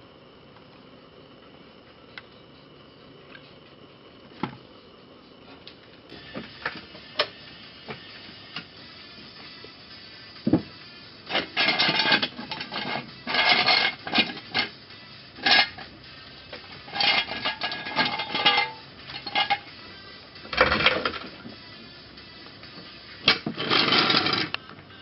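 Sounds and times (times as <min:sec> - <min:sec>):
metal tools clinking and clattering: 0:11.3 - 0:14.7, 0:16.9 - 0:19.6.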